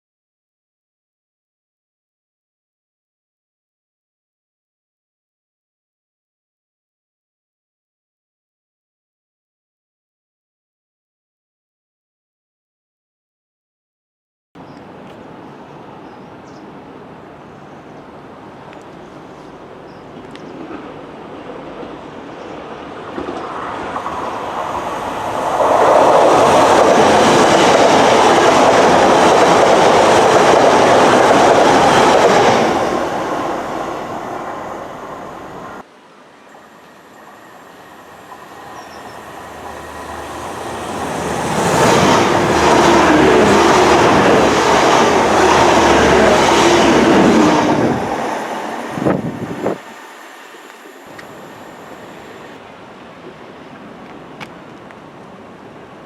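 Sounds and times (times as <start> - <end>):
train passing: 15.0 - 56.0.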